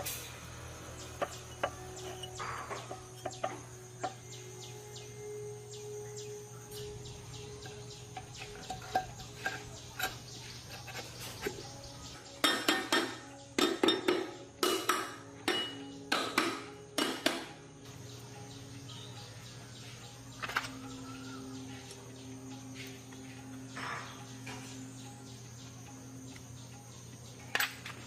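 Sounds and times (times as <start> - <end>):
metal tools clinking and knocking: 1.0 - 4.3, 6.7 - 11.6, 27.4 - 28.0.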